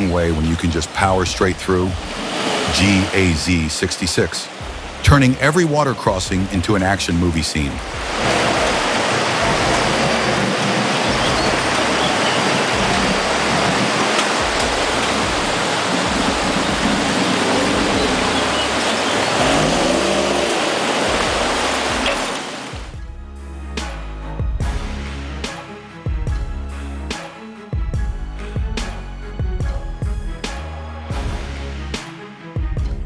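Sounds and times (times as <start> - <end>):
water splashing around truck: 0.0 - 23.0
background music: 0.0 - 33.0
truck engine running: 4.6 - 22.2.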